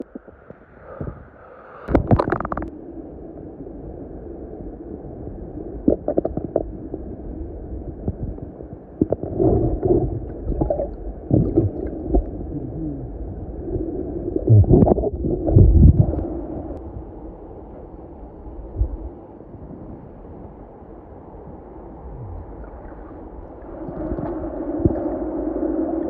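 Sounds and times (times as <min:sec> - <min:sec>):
underwater river rush: 0:00.0 - 0:26.0
underwater knocks and bumps: 0:01.9 - 0:02.7, 0:09.0 - 0:12.5, 0:14.4 - 0:16.2.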